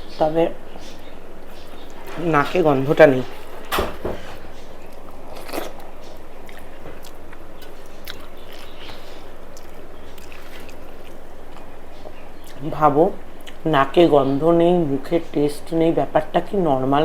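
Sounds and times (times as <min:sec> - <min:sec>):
steady background noise: 0:00.0 - 0:17.0
person chewing food: 0:03.2 - 0:12.6, 0:13.3 - 0:13.7
small crunchy clicks: 0:03.3 - 0:12.6.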